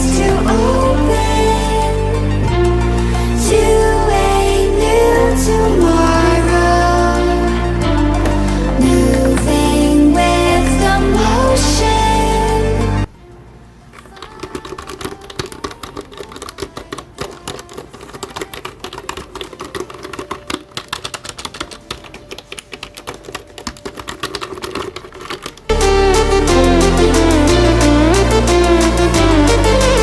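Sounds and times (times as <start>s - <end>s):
rapid keyboard typing: 0.0s - 12.0s, 14.0s - 25.7s
music: 0.0s - 30.0s.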